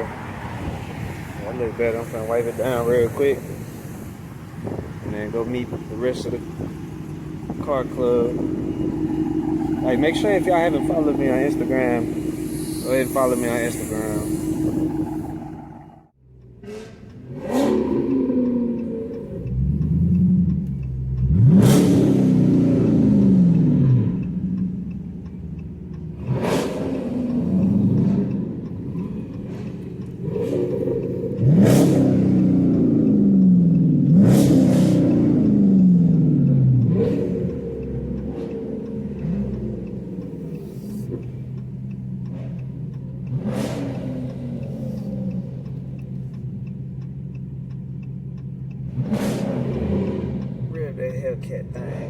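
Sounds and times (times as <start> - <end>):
car engine revving: 0.0 - 52.0
short hissing burst: 12.1 - 15.2.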